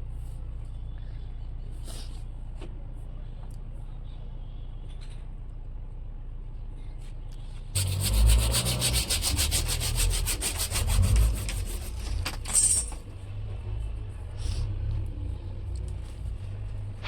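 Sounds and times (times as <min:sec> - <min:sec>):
low steady hum: 0:00.0 - 0:17.0
hand saw cutting: 0:07.8 - 0:13.0.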